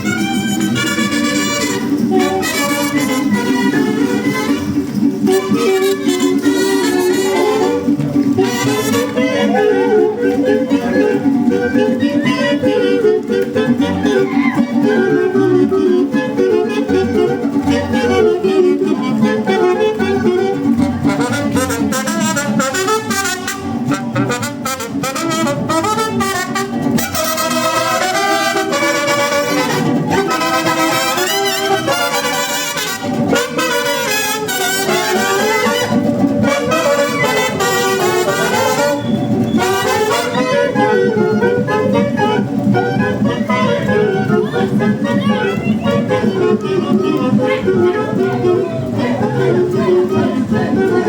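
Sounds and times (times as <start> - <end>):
brass band playing: 0.0 - 51.0
drums: 13.0 - 51.0.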